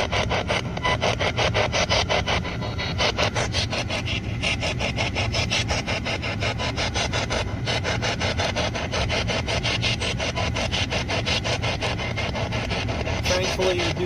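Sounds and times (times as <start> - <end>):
radio static chopping: 10.2 - 14.0.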